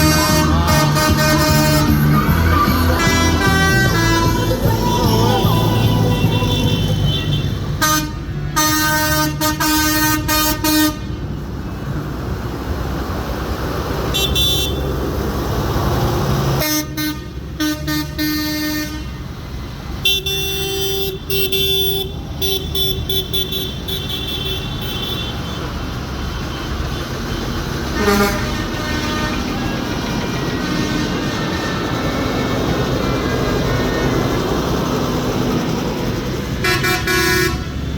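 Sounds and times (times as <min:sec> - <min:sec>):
vehicle horns tooting: 0:00.0 - 0:11.2, 0:14.1 - 0:15.0, 0:16.6 - 0:19.2, 0:20.0 - 0:32.2, 0:36.6 - 0:37.9
tractor engines rumbling: 0:00.0 - 0:37.9.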